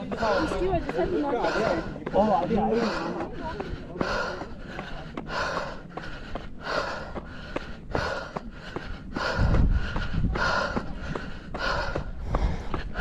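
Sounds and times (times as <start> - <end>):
light footstep clicks: 0.0 - 13.0
runner breathing hard: 0.0 - 13.0
wind rumble on microphone: 9.0 - 13.0.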